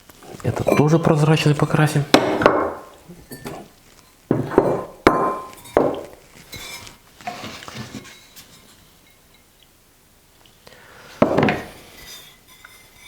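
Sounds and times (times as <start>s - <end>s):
ceramic cups clinking: 0.4s - 6.9s, 11.2s - 13.0s.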